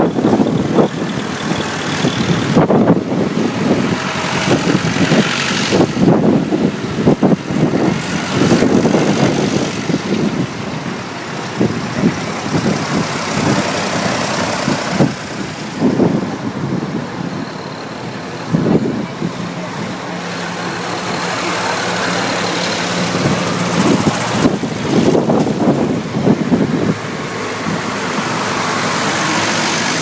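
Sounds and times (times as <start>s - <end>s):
tractor engines running: 0.0s - 30.0s.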